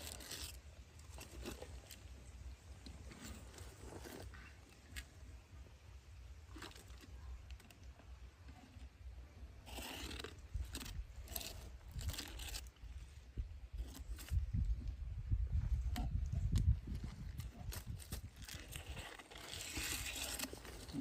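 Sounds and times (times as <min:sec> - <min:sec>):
animal crunching and tearing food: 0:00.0 - 0:02.1, 0:09.6 - 0:13.1, 0:13.7 - 0:14.7, 0:15.8 - 0:21.0.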